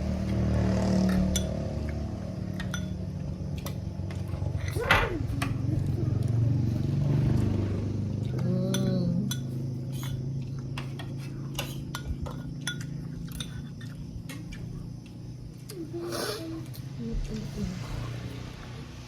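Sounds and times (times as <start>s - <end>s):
cutlery clinking on plates: 2.6s - 3.0s, 8.7s - 14.6s.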